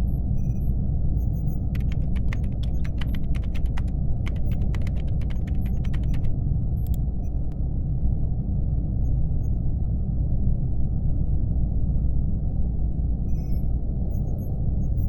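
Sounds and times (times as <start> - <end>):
steady low hum: 0.0 - 15.0
laptop keyboard typing: 1.6 - 7.0.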